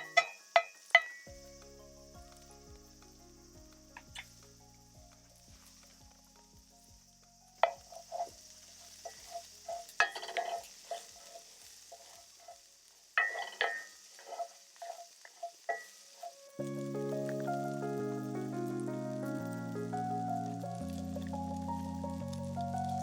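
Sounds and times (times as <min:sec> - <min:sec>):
food sizzling: 0:00.0 - 0:23.0
utensil scraping skillet: 0:07.6 - 0:16.6.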